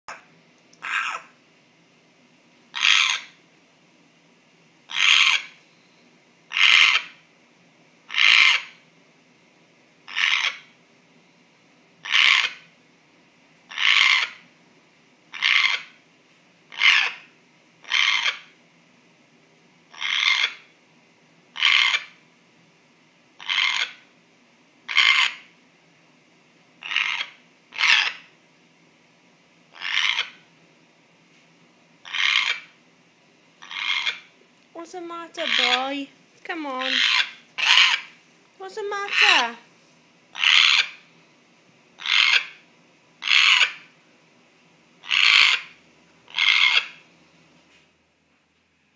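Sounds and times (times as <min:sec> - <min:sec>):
parrot rasping call: 0:00.8 - 0:01.4, 0:02.7 - 0:03.4, 0:04.9 - 0:05.6, 0:06.5 - 0:07.2, 0:08.1 - 0:08.8, 0:10.1 - 0:10.7, 0:12.0 - 0:12.7, 0:13.7 - 0:14.4, 0:15.3 - 0:16.0, 0:16.7 - 0:18.5, 0:19.9 - 0:20.7, 0:21.5 - 0:22.2, 0:23.4 - 0:24.0, 0:24.9 - 0:25.5, 0:26.8 - 0:28.3, 0:29.7 - 0:30.4, 0:32.0 - 0:32.7, 0:33.6 - 0:34.3, 0:35.4 - 0:36.0, 0:36.8 - 0:38.2, 0:39.0 - 0:39.6, 0:40.3 - 0:41.0, 0:42.0 - 0:42.6, 0:43.2 - 0:43.9, 0:45.0 - 0:47.0.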